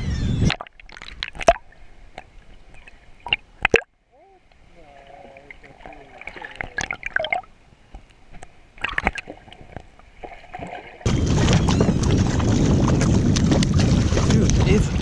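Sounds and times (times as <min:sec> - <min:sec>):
wind noise on microphone: 0:00.0 - 0:00.6, 0:11.0 - 0:15.0
water splashing against kayak: 0:04.6 - 0:15.0.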